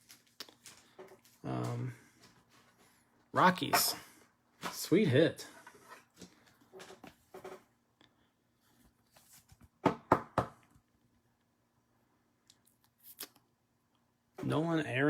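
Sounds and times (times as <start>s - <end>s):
hard object knocking on tabletop: 9.8s - 10.6s.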